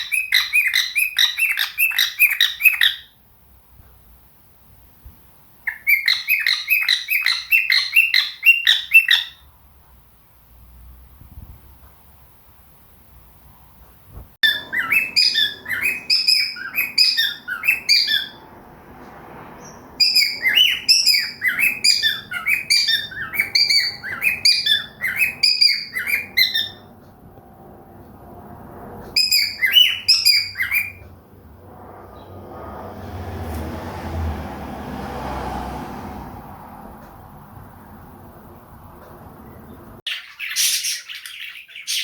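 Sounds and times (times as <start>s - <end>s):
parrot chirping: 0.0s - 3.2s, 5.6s - 9.5s, 14.4s - 27.1s, 29.0s - 31.4s, 39.4s - 42.0s.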